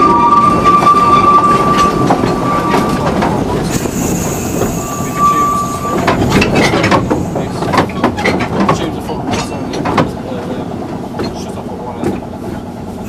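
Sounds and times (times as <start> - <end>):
high steady tone: 0.0 - 6.6
train wheels clicking on rail joints: 0.0 - 13.0.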